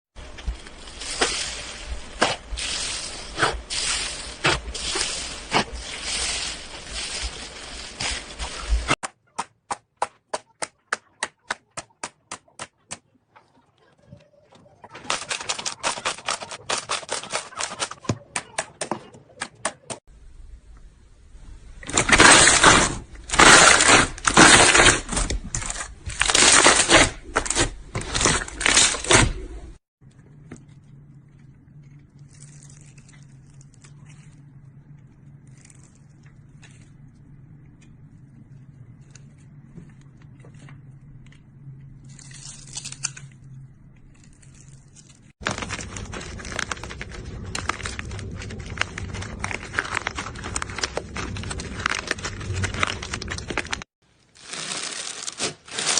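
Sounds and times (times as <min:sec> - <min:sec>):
slime crackling and crinkling: 0:00.2 - 0:09.0, 0:21.9 - 0:55.9.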